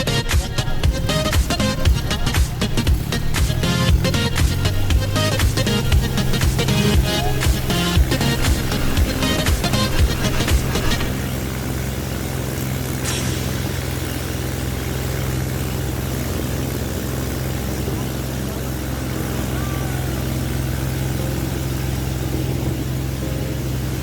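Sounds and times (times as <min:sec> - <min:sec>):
music: 0:00.0 - 0:12.3, 0:12.9 - 0:14.0, 0:19.0 - 0:24.0
engine running steadily: 0:00.0 - 0:24.0.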